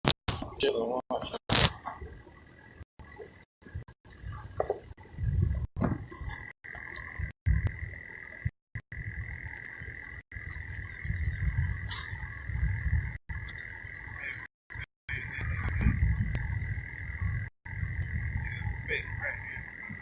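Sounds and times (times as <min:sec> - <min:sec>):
frogs calling: 0:06.2 - 0:20.0.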